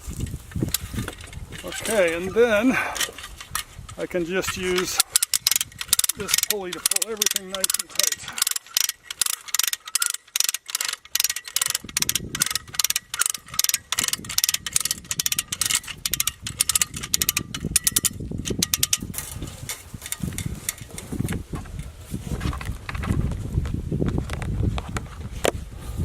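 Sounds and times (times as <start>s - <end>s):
ratchet clicking: 3.0s - 21.4s.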